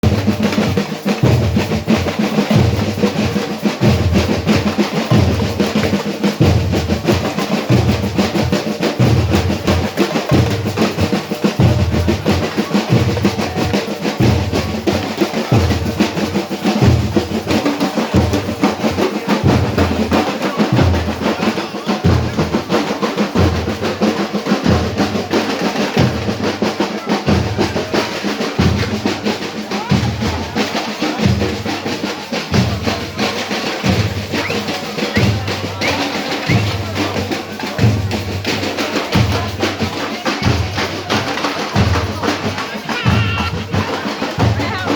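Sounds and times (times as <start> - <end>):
drum-led music: 0.0 - 44.9
snare drum: 0.0 - 44.9
deep bass drum beat: 39.2 - 44.9.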